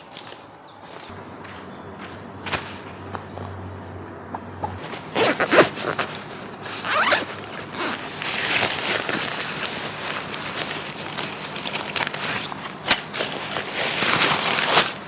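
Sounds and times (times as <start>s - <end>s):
tent zipper being pulled: 4.8s - 10.1s.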